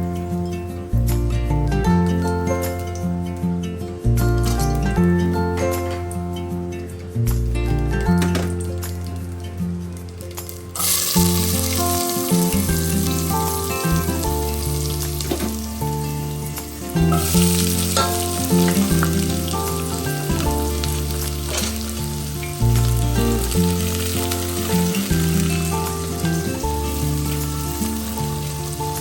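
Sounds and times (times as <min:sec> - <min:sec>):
background music with bass: 0:00.0 - 0:29.0
food sizzling in a pan: 0:08.5 - 0:29.0.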